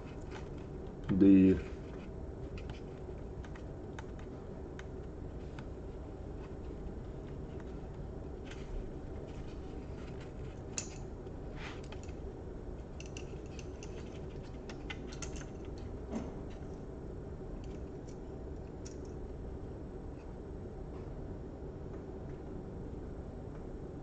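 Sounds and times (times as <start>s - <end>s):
steady low hum: 0.0s - 24.0s
small laptop parts clicking: 2.4s - 5.7s, 12.8s - 15.9s.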